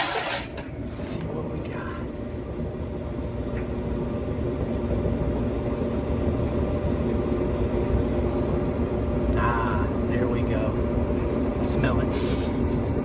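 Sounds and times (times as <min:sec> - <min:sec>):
clothes dryer humming: 0:00.0 - 0:13.0.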